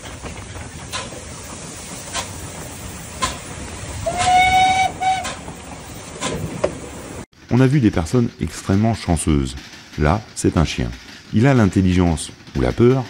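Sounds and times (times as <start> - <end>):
wheels clicking over rail joints: 0.0 - 13.0
train whistle: 4.0 - 5.4.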